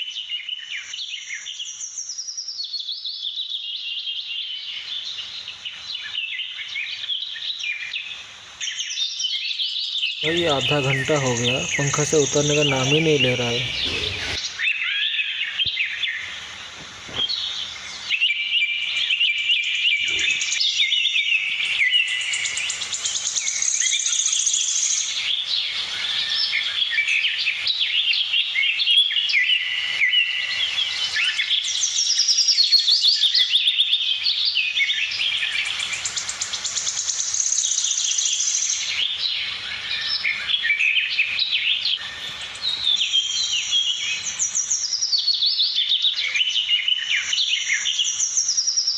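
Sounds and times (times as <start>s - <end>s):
budgerigars chirping and trilling: 10.2s - 14.4s.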